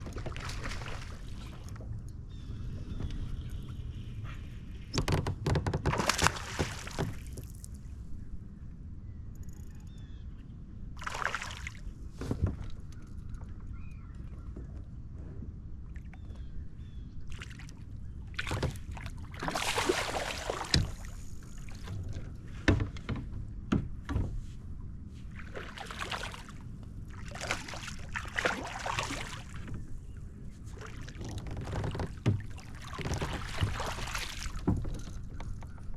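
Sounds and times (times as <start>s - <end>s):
water splashing around kayak: 0.0s - 2.0s, 4.7s - 7.8s, 11.0s - 12.9s, 17.3s - 24.6s, 25.2s - 35.9s.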